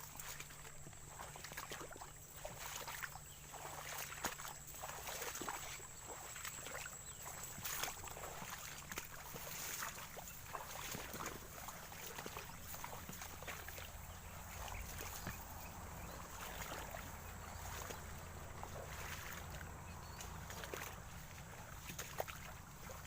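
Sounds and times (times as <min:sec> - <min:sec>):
person wading through water: 0:00.0 - 0:23.0.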